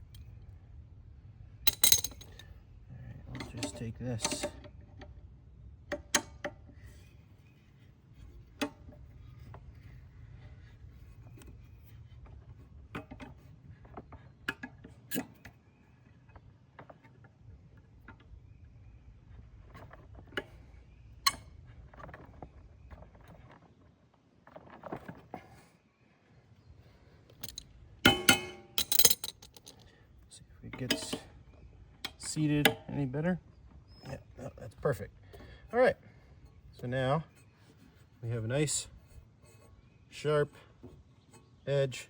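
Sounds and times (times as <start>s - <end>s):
metallic tool clicks and knocks: 1.7s - 2.4s, 27.4s - 29.8s, 30.8s - 31.2s.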